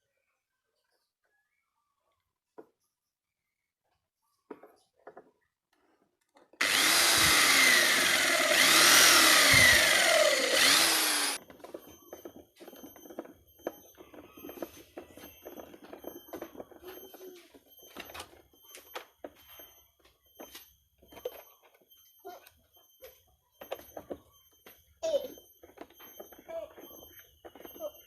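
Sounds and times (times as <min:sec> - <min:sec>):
electric power tool motor: 0:06.6 - 0:11.4.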